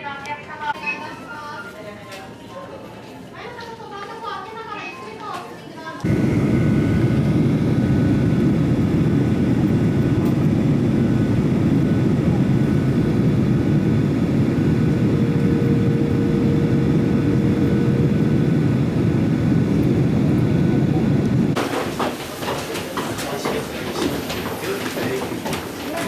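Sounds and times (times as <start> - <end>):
airliner engine rumble: 6.0 - 26.0.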